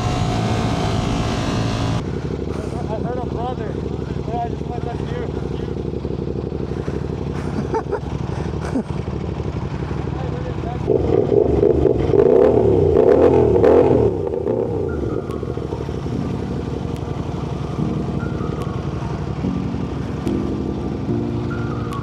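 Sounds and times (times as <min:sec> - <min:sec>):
music with steady beat: 0:00.0 - 0:02.0, 0:15.1 - 0:22.0
motorcycle engine revving: 0:00.0 - 0:20.3.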